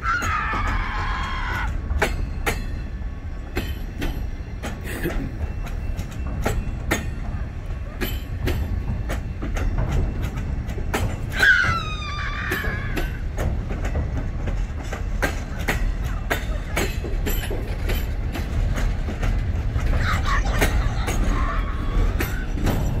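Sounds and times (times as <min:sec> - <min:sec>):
freight train rumble: 0:00.0 - 0:23.0
wheels clicking over rail joints: 0:00.0 - 0:23.0
high squeal: 0:11.3 - 0:13.2.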